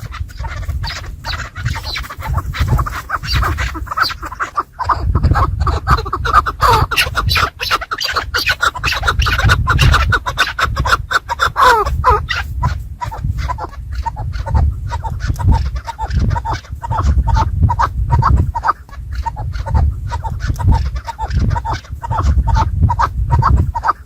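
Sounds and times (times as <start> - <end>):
partridges clucking: 0.0 - 17.0
steady low rumble: 0.0 - 24.0.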